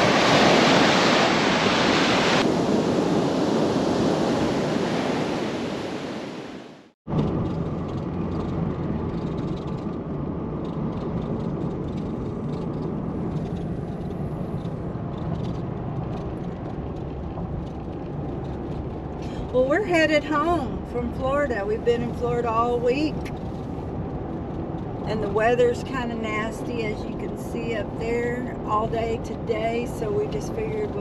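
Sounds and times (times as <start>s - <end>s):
ocean surf breaking on beach: 0.0s - 7.0s
car cabin road noise: 7.1s - 31.0s.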